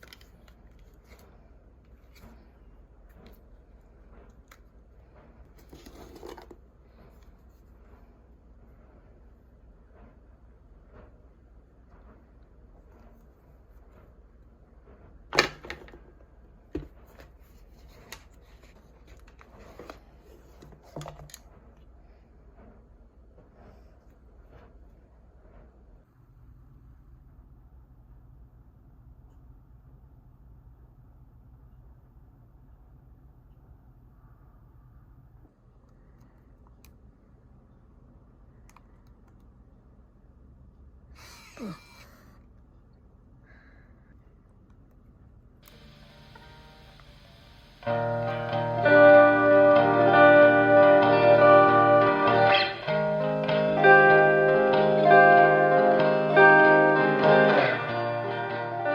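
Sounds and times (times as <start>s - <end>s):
breathy sigh: 41.2s - 42.4s.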